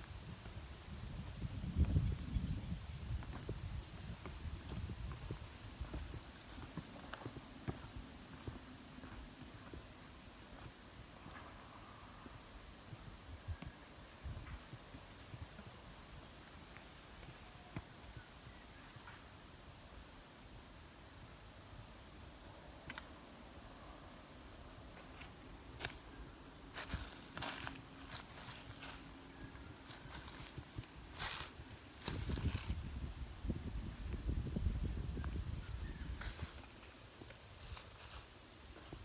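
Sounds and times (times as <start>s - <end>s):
insects trilling: 0.0s - 39.0s
lower insect trill: 0.0s - 39.0s
faint footsteps: 3.1s - 9.9s, 26.7s - 32.9s, 36.2s - 39.0s.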